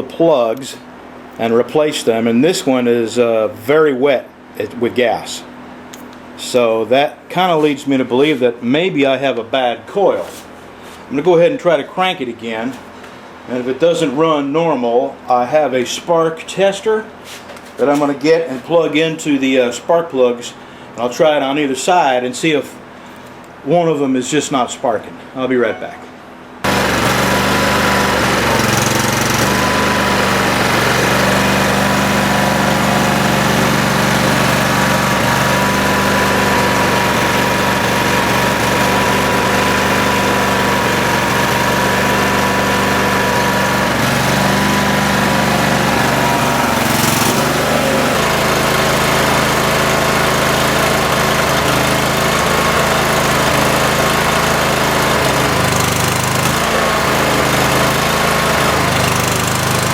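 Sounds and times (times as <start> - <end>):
riding mower engine running: 26.4 - 59.9.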